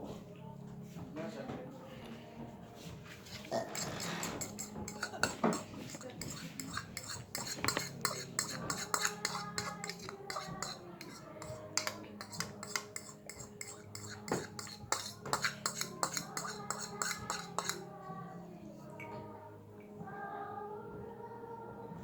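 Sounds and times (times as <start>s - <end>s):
metal fork scraping a dish: 3.2s - 17.9s.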